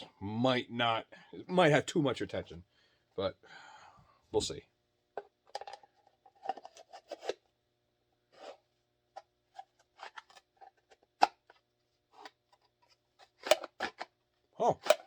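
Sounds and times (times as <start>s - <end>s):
pistol scraping in plastic holster: 6.4s - 7.4s, 9.2s - 14.2s.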